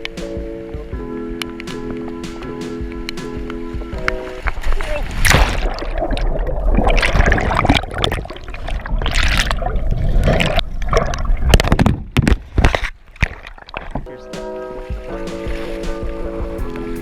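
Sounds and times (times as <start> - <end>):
rough water rushing and splashing: 0.0 - 17.0
wind rumble on microphone: 2.8 - 12.9.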